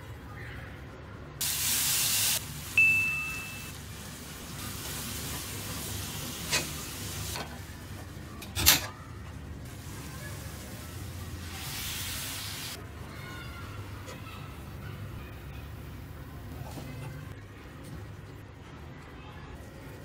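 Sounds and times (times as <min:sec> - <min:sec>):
spice paste sizzling in a pan: 0:01.4 - 0:07.3, 0:09.7 - 0:12.8
high ding: 0:02.8 - 0:03.7.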